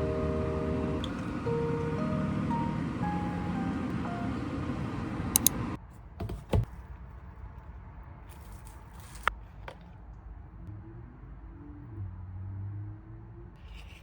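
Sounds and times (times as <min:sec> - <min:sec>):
soft background music: 0:00.0 - 0:05.8.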